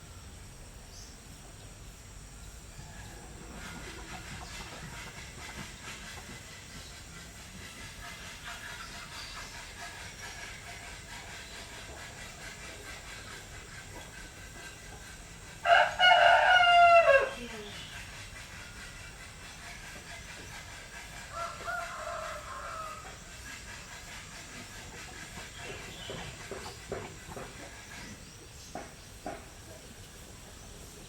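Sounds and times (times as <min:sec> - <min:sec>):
background hiss: 0:00.0 - 0:31.0
rooster crowing: 0:02.7 - 0:03.4, 0:15.6 - 0:17.5, 0:21.3 - 0:23.2.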